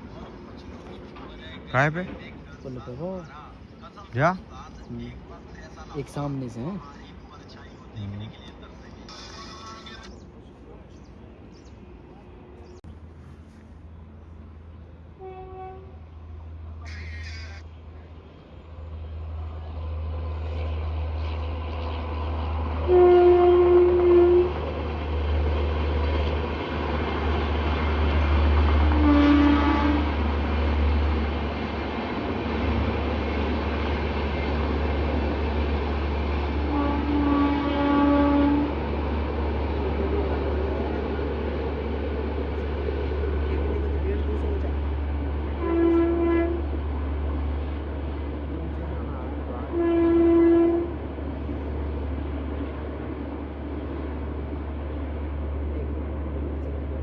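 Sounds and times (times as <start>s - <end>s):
train rumbling past: 0.0s - 57.0s
train horn blast: 15.1s - 16.2s, 22.8s - 24.7s, 28.8s - 30.2s, 36.6s - 38.8s, 45.5s - 46.8s, 49.6s - 51.0s.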